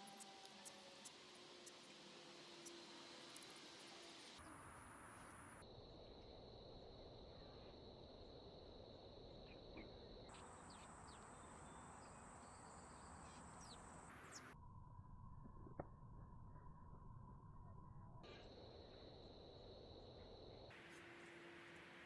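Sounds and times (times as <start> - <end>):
high insect buzz: 20.7 - 22.0.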